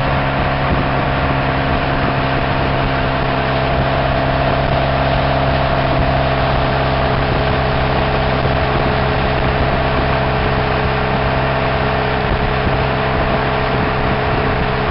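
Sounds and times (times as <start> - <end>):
car engine running steadily: 0.0 - 14.9.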